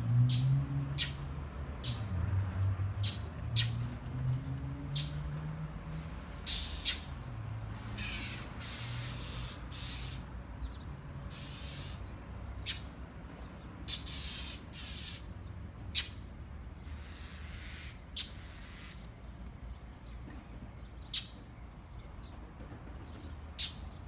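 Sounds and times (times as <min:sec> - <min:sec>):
birds giving harsh raspy calls: 0:00.3 - 0:01.2, 0:01.8 - 0:02.1, 0:03.0 - 0:03.8, 0:06.4 - 0:07.2, 0:07.8 - 0:12.9, 0:13.8 - 0:15.3, 0:15.9 - 0:16.2, 0:16.8 - 0:19.1.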